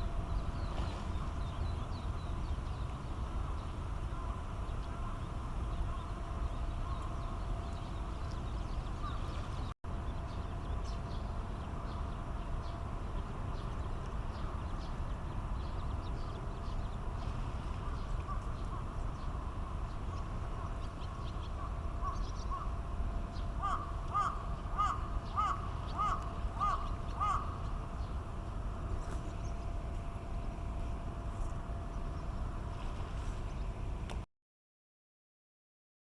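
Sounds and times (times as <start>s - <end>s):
low steady rumble: 0.0s - 34.3s
bird calling arched notes: 23.6s - 27.8s.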